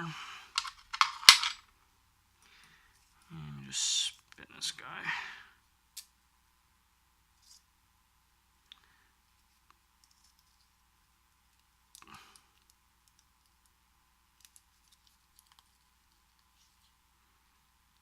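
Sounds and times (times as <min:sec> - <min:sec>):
padlock rattle: 0:00.6 - 0:01.6.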